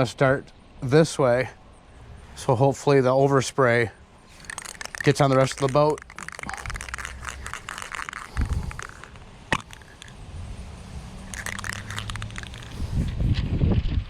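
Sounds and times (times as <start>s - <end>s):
handling crackles and clicks: 4.3s - 10.2s, 11.2s - 13.4s
wind rumbling on microphone: 5.9s - 14.0s.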